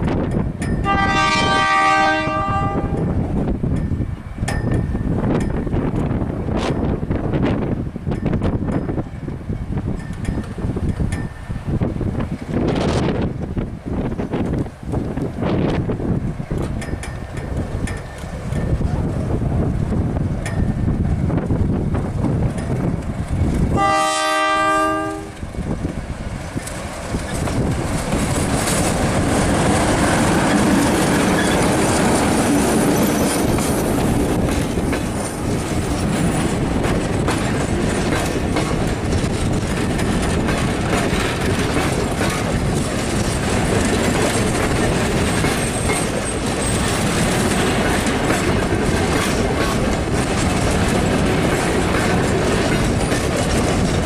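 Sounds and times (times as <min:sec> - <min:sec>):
train rumbling past: 0:00.0 - 0:54.0
train horn blast: 0:00.8 - 0:03.1, 0:23.7 - 0:25.4
wheel clatter on rails: 0:25.3 - 0:54.0.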